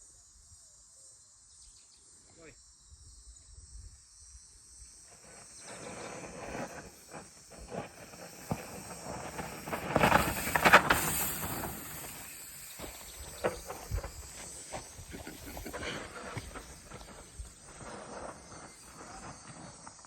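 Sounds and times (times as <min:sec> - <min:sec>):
bicycle tyres on loose dirt: 0:04.4 - 0:20.0
bike rattling over bumps: 0:05.2 - 0:20.0.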